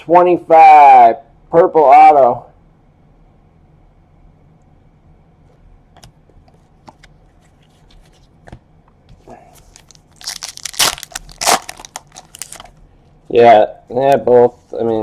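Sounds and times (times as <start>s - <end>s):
cards being handled: 5.9s - 12.8s
wrapper crinkling and tearing: 9.7s - 12.8s.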